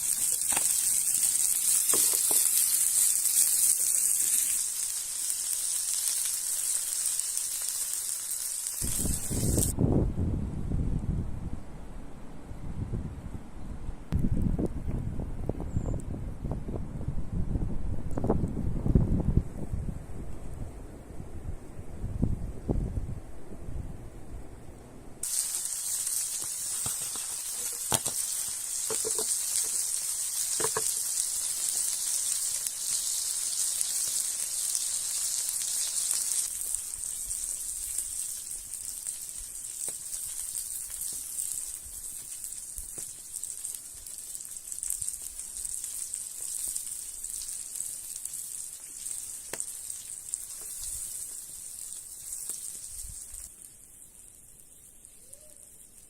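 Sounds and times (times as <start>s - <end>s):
food sizzling in hot pan: 0.0s - 9.8s, 25.2s - 56.0s.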